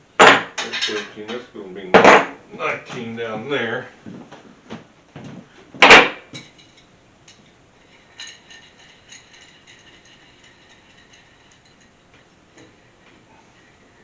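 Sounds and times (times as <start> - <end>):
metal hand tools clinking: 6.3 - 13.0.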